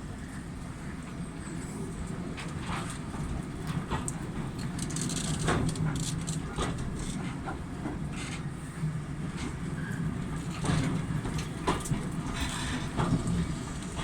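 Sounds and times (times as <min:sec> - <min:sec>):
train rumbling: 0:00.0 - 0:14.0
wheels clicking on track: 0:02.4 - 0:08.5, 0:09.3 - 0:14.0.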